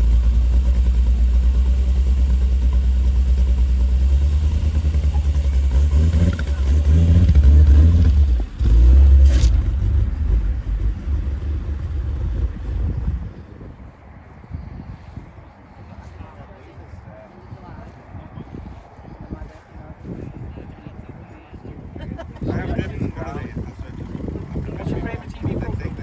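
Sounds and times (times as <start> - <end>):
car engine accelerating: 0.0 - 13.9.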